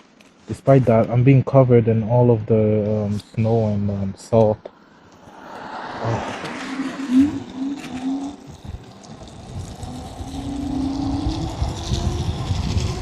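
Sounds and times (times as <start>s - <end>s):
wind and road noise: 0.0s - 13.0s
low hum: 4.8s - 13.0s.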